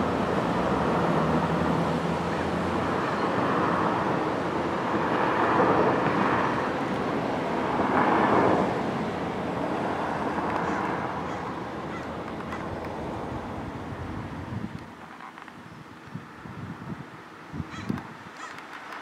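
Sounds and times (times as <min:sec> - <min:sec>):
road traffic: 0:00.0 - 0:19.0
vehicles passing: 0:00.0 - 0:19.0.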